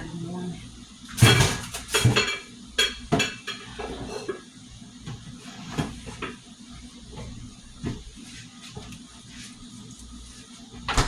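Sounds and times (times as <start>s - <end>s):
dishes and cutlery clinking: 1.2s - 4.4s.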